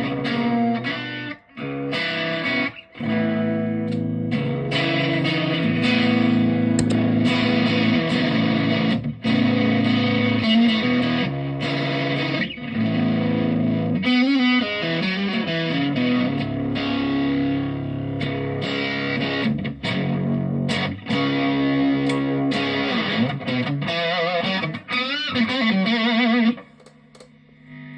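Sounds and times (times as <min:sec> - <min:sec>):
overdriven electric guitar: 0:00.0 - 0:27.9.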